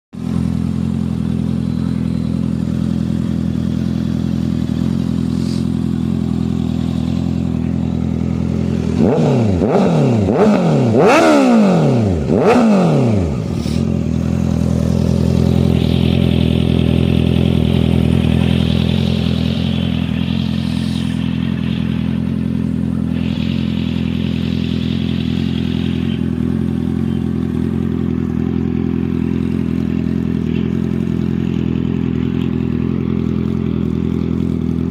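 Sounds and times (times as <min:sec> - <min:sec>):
motorcycle engine idling and revving: 0:00.1 - 0:34.9.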